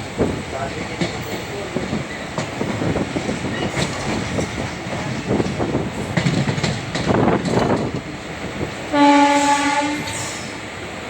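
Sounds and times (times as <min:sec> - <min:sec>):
wheels rumbling on rail: 0:00.0 - 0:11.0
wheels clattering over rail joints: 0:00.6 - 0:08.3.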